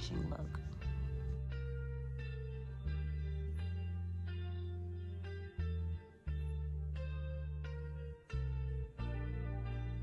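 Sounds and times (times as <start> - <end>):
plucked guitar notes: 0.0 - 10.0
steady bass line: 0.0 - 10.0.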